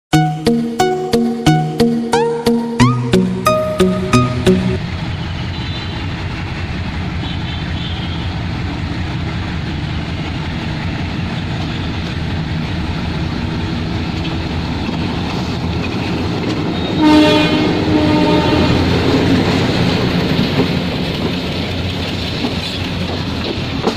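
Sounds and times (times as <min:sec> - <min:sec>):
diesel locomotive engine running: 0:03.2 - 0:23.9
rumble of moving train: 0:04.2 - 0:23.9
locomotive horn: 0:07.2 - 0:08.3, 0:16.8 - 0:19.2.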